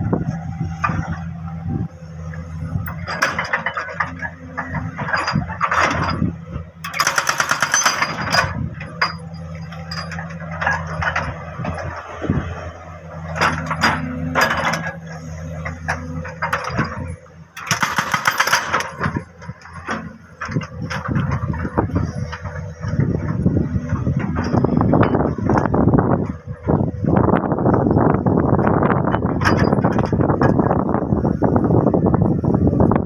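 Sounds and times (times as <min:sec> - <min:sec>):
engine hum: 0:00.0 - 0:33.0
jackhammer hammering rock: 0:06.8 - 0:09.2, 0:17.6 - 0:19.3.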